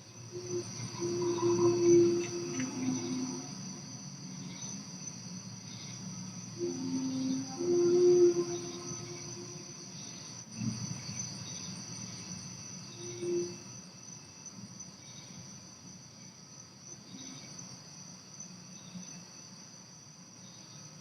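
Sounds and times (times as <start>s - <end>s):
crickets chirping: 0.0s - 21.0s
short low horn-like tone: 0.4s - 3.7s, 6.6s - 10.0s.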